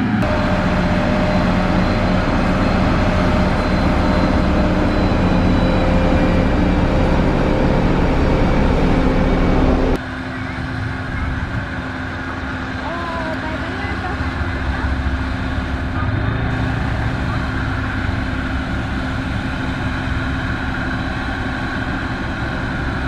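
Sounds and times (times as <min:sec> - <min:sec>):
heavy machine engine running: 0:00.0 - 0:23.0.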